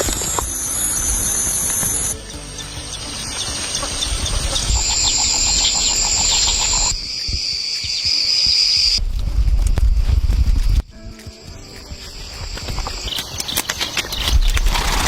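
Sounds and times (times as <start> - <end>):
bird calls: 0.0 - 9.0, 12.2 - 15.0
high-pitched insect drone: 0.0 - 9.0
low rumble: 8.8 - 10.9.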